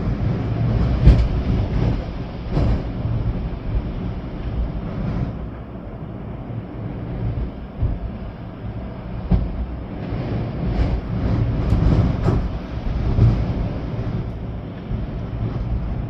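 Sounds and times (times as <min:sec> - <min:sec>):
rain: 0:00.0 - 0:05.4, 0:10.6 - 0:16.0
storm wind gusting: 0:00.0 - 0:16.0.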